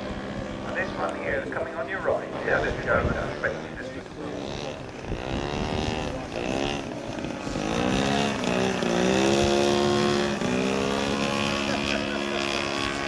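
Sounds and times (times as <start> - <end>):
model aircraft engine: 0.0 - 13.0.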